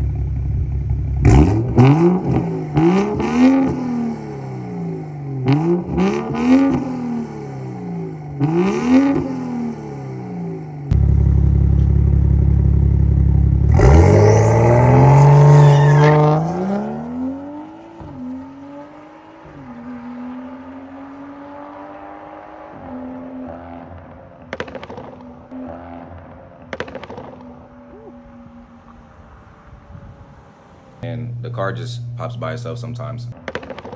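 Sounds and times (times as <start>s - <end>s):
car engine revving: 0.0s - 22.9s, 31.0s - 33.4s
exhaust crackling pops: 31.0s - 33.9s.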